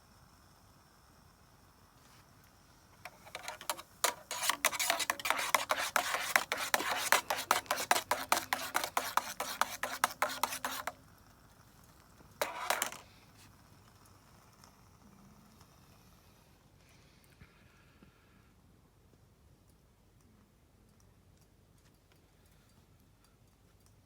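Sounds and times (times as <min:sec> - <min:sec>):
utensil scraping cookware: 0:03.1 - 0:11.0, 0:12.4 - 0:13.0.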